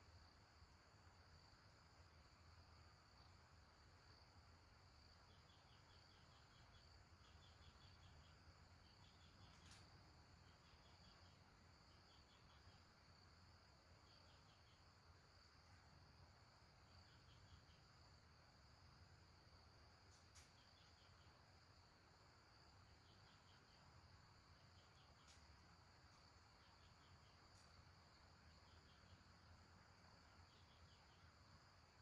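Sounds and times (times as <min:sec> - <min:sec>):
crickets chirping: 0:00.0 - 0:32.0
insect drone: 0:00.0 - 0:32.0
faint click: 0:20.1 - 0:20.7, 0:25.2 - 0:25.5.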